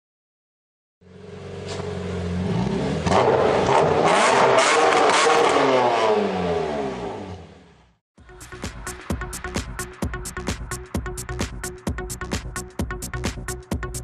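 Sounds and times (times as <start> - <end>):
car engine accelerating hard: 1.0 - 7.8.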